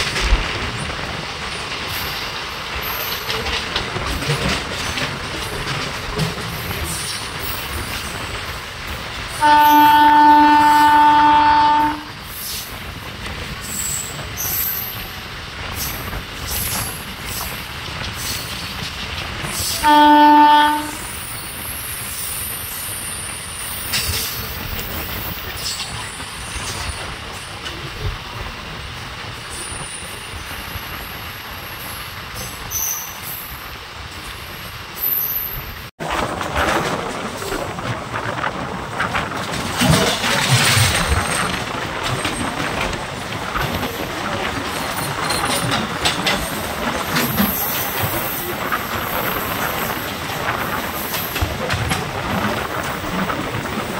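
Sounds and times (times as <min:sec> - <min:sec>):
moving train running noise: 0:00.0 - 0:53.9
train air horn blasts: 0:09.4 - 0:12.2, 0:19.7 - 0:21.1.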